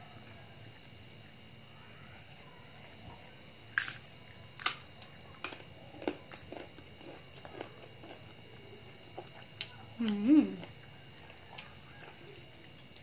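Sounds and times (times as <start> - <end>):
chewing close to microphone: 2.3 - 13.0
crunchy bites into mango: 3.7 - 8.3.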